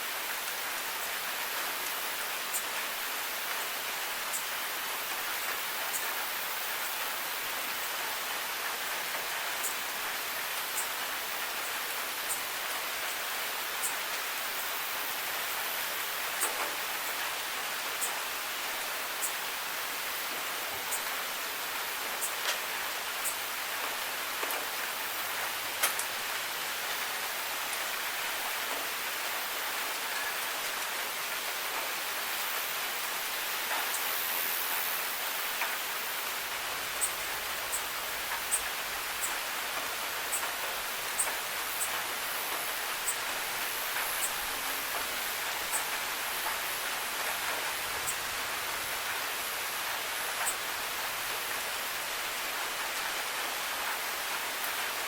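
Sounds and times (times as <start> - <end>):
rain on hard surfaces: 0.0 - 55.0.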